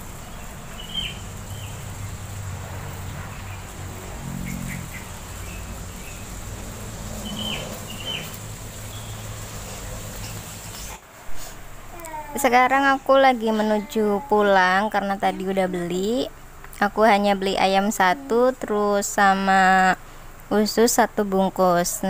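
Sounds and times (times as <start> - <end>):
birds chirping: 0.0 - 11.0
low engine hum: 0.0 - 16.7.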